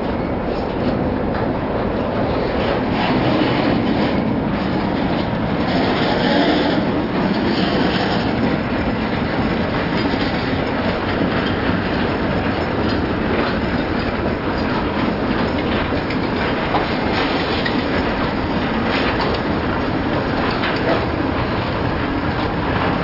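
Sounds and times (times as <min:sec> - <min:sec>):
steel wheels on rails: 0:00.0 - 0:23.0
wheels clicking over rail joints: 0:00.0 - 0:23.0.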